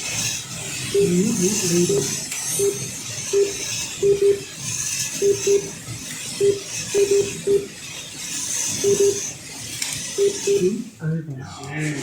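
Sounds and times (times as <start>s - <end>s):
whir of small electric motors: 0.0s - 12.0s
lap counter beeps: 0.9s - 4.5s, 5.2s - 5.8s, 6.4s - 7.7s, 8.8s - 9.3s, 10.2s - 11.0s.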